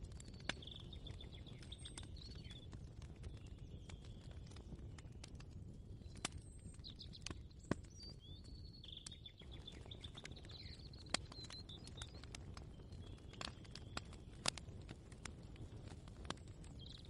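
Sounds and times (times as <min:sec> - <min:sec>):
small bird chirping: 0:00.3 - 0:02.7, 0:06.0 - 0:14.2.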